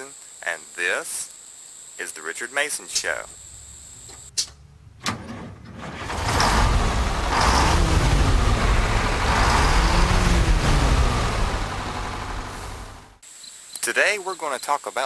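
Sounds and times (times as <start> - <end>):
pickup truck engine revving: 5.8 - 13.2.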